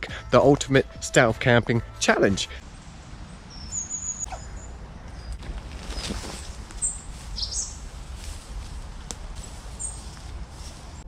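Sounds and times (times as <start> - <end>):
steady low rumble: 2.5 - 11.0
bird chirps and whistles: 3.6 - 4.7.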